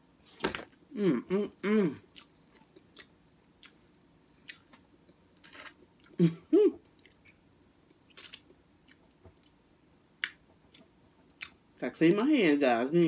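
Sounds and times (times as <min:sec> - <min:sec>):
person chewing food: 0:02.0 - 0:06.2, 0:06.9 - 0:09.6, 0:10.2 - 0:11.6.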